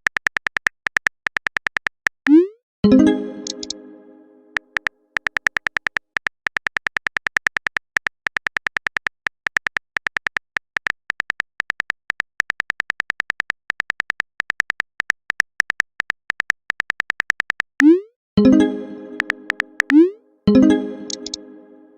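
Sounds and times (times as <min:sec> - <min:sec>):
phone keyboard typing clicks: 0:00.0 - 0:02.3, 0:04.6 - 0:17.9, 0:19.1 - 0:20.0, 0:21.0 - 0:21.4.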